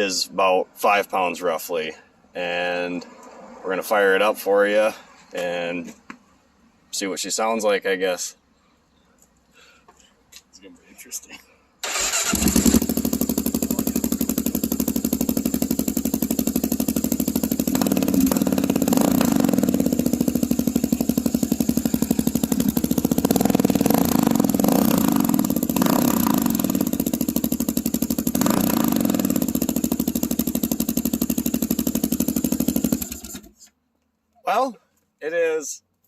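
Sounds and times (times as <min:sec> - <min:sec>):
motorcycle engine idling: 0:12.0 - 0:33.5.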